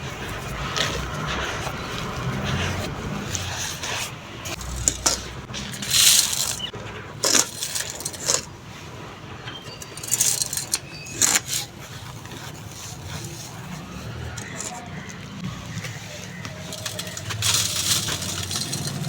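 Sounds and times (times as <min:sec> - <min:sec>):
sand trickling: 0:00.0 - 0:06.7.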